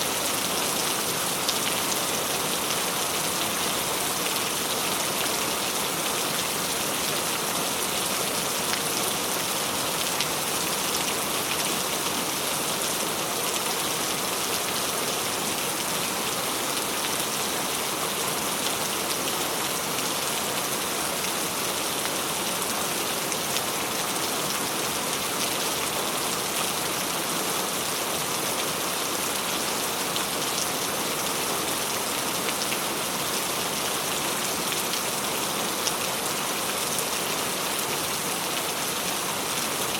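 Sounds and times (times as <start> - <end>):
rain pattering on a surface: 0.1 - 39.9.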